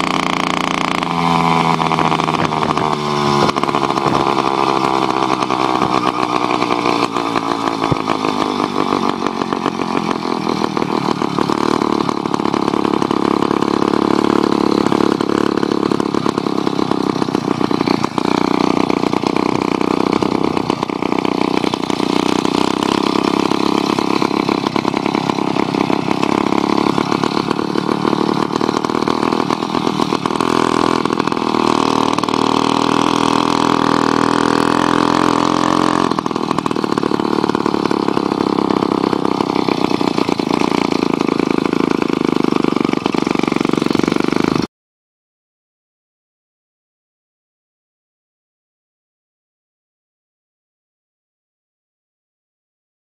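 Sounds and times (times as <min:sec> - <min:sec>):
two-stroke bicycle engine running: 0:00.0 - 0:44.7.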